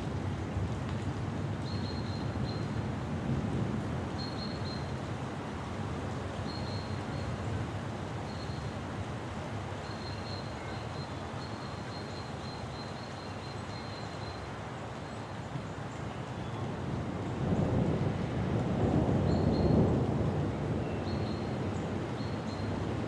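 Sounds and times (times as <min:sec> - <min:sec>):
deep thunder rumble: 0:16.9 - 0:23.0.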